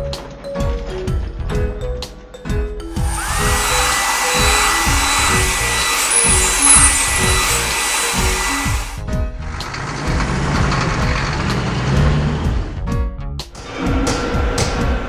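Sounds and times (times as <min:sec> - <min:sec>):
bouncy background music: 0:00.0 - 0:15.0
hissing blast with whine: 0:03.0 - 0:09.0.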